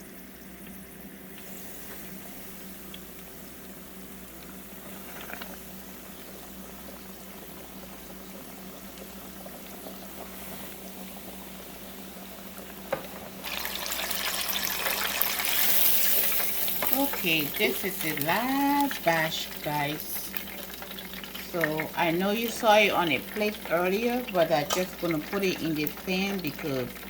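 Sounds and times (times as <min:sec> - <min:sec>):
chicken deep-frying in oil: 0:00.0 - 0:27.0.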